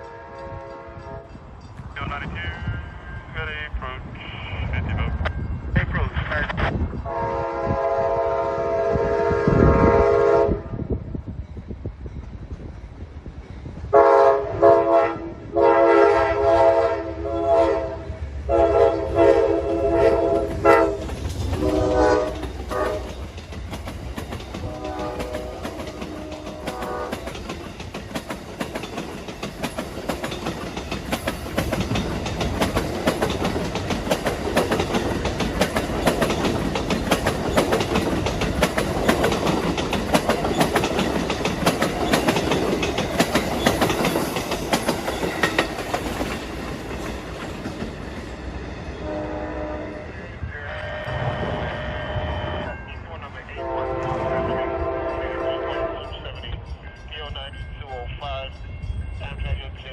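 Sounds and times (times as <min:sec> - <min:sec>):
train air horn blasts: 0:00.0 - 0:01.3, 0:07.0 - 0:10.9, 0:13.9 - 0:21.0, 0:21.6 - 0:23.1, 0:24.6 - 0:27.3, 0:49.0 - 0:52.8, 0:53.5 - 0:56.1.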